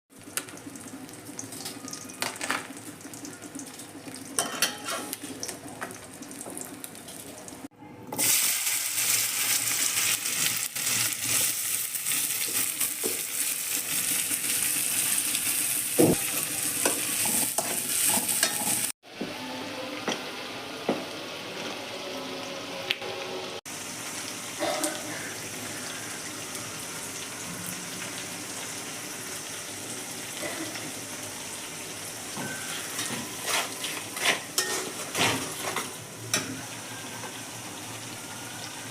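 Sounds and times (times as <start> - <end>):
food sizzling in hot oil: 8.2 - 19.0, 23.7 - 38.9
spatula scraping pan: 32.8 - 36.0.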